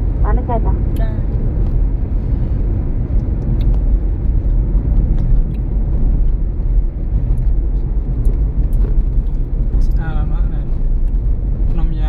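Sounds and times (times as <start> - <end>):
road rumble inside car cabin: 0.0 - 12.0.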